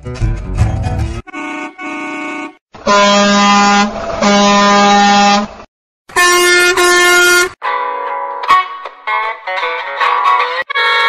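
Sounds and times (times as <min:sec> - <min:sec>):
truck air horn blasts: 0:01.3 - 0:07.6, 0:10.7 - 0:11.0.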